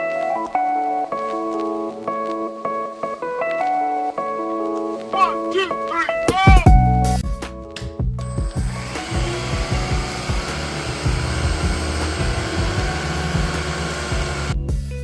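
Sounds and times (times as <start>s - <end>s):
background music with bass: 5.2s - 15.0s
stick vacuum running: 8.4s - 14.6s.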